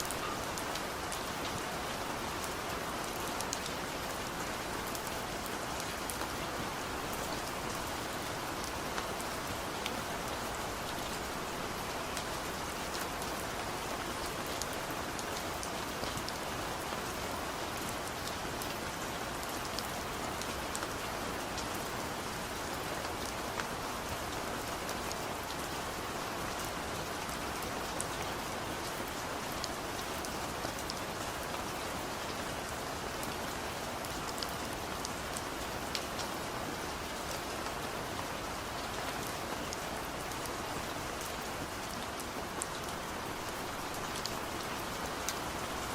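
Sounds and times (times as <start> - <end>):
heavy rain falling: 0.0 - 45.9.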